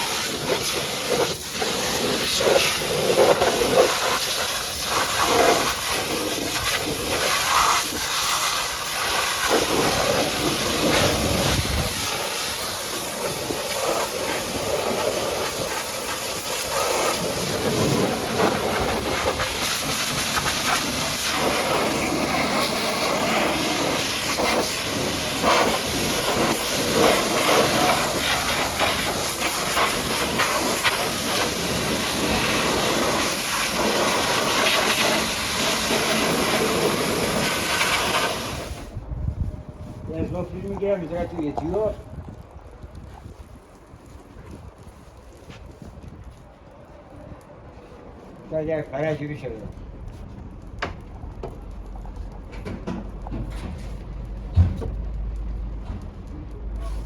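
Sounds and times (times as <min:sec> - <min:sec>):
pressure washer spraying: 0:00.0 - 0:38.9.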